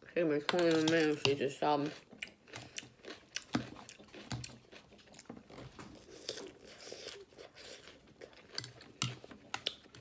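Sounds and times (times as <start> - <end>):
person chewing crunchy salad: 0.5 - 10.0.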